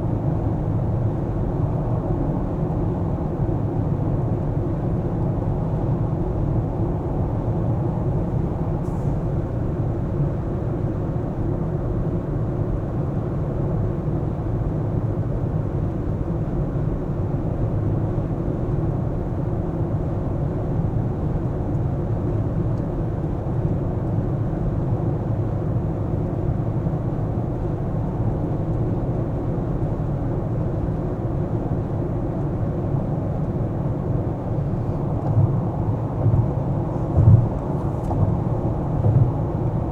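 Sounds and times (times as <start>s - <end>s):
car tyre and engine rumble: 32.4s - 39.9s.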